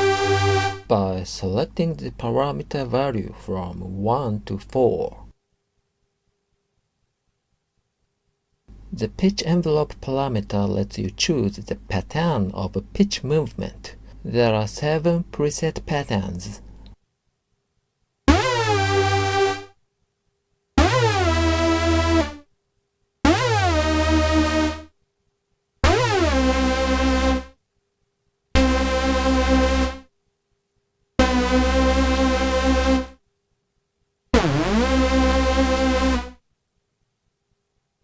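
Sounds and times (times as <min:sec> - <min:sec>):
synthesizer notes with pitch swoops: 0:00.0 - 0:00.9, 0:18.3 - 0:19.7, 0:20.8 - 0:22.4, 0:23.2 - 0:24.9, 0:25.8 - 0:27.6, 0:28.6 - 0:30.1, 0:31.2 - 0:33.2, 0:34.4 - 0:36.4.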